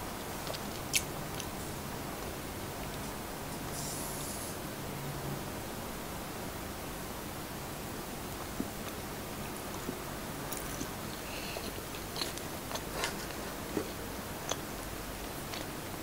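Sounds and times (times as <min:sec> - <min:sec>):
steady hiss: 0:00.0 - 0:16.0
soft chewing with mouth clicks: 0:00.3 - 0:01.6, 0:08.5 - 0:14.7, 0:15.4 - 0:15.8.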